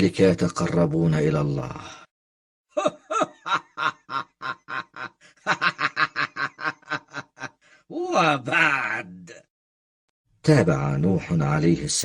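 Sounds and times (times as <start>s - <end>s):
person laughing: 2.8s - 7.6s.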